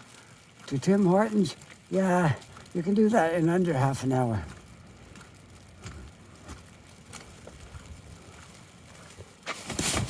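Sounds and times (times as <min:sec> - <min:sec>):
snow knocked off umbrella: 0:09.4 - 0:10.0.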